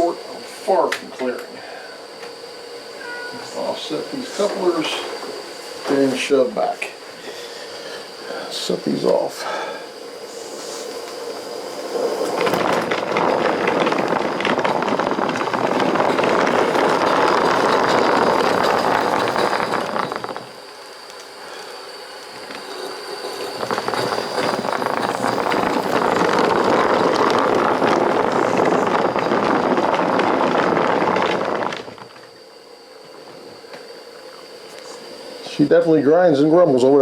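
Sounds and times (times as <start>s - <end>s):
thin steady high tone: 2.8s - 12.3s
locomotive wheels grinding on rail: 3.4s - 35.8s.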